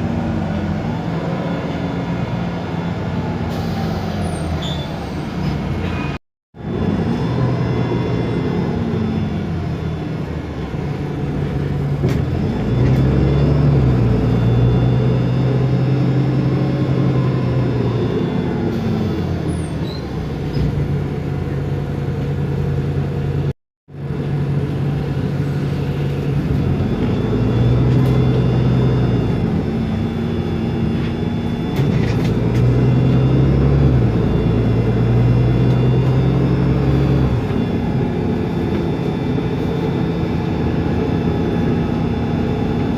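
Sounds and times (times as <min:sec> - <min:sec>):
bus diesel engine running: 0:00.0 - 0:42.9.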